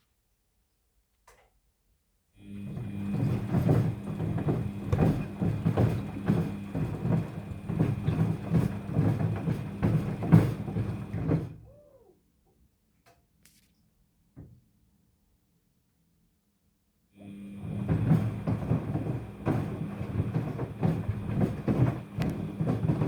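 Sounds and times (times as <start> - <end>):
washing machine motor hum: 2.4 - 11.6, 17.2 - 23.0.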